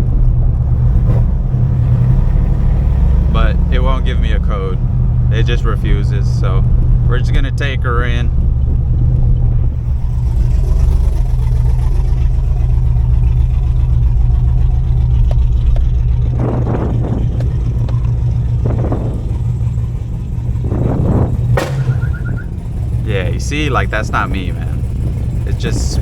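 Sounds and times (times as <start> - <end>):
car engine running rough: 0.0 - 26.0
engine revs spiking: 0.0 - 26.0.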